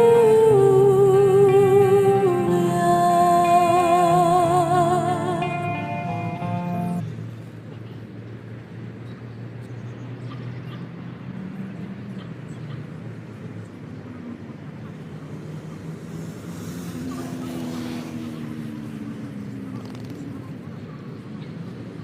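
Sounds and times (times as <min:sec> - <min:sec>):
vehicle passing: 0:10.1 - 0:22.0.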